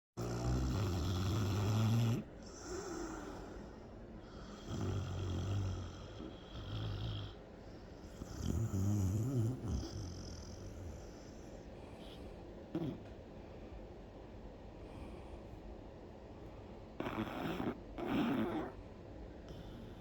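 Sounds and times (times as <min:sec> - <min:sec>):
dog snoring: 0:00.2 - 0:03.6, 0:04.2 - 0:13.1, 0:17.0 - 0:18.8.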